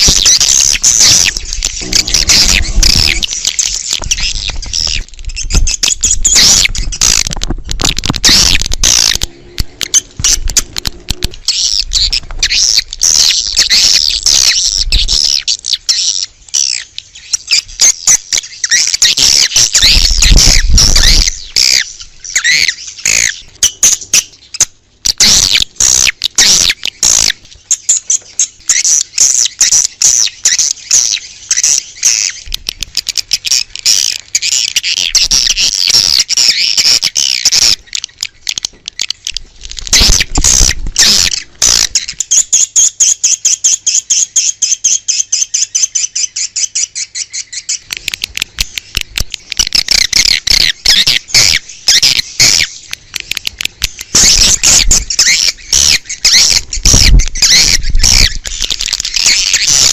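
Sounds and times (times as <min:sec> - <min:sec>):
swiftlets twittering: 0:00.0 - 0:14.6
low rumble: 0:00.8 - 0:05.3.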